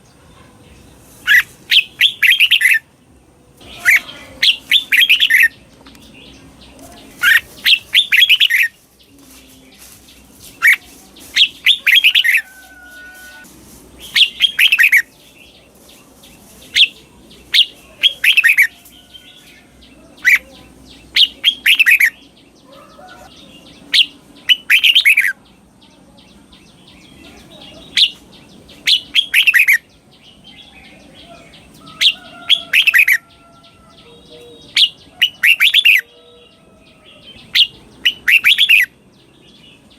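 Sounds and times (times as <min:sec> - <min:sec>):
bird singing whistled notes: 0:01.2 - 0:02.9, 0:03.6 - 0:06.5, 0:07.1 - 0:09.9, 0:10.6 - 0:15.6, 0:20.2 - 0:22.4, 0:23.0 - 0:25.4, 0:26.6 - 0:33.3, 0:37.4 - 0:39.9.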